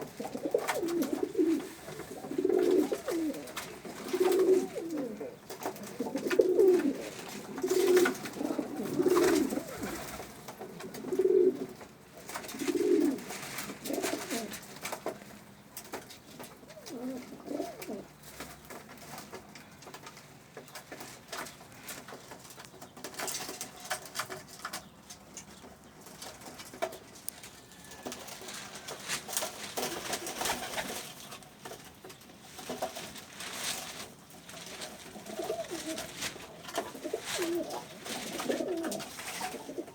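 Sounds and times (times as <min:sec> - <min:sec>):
pigeons cooing: 0:00.0 - 0:14.7, 0:16.5 - 0:18.2, 0:34.5 - 0:39.9
birds rustling and clicking: 0:00.0 - 0:39.9.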